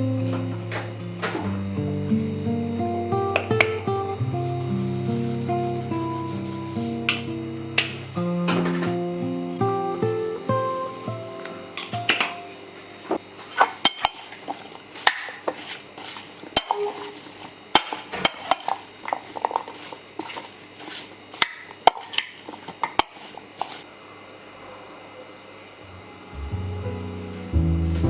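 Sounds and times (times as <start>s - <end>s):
dishes and utensils clinking: 13.5s - 15.7s, 16.5s - 23.8s.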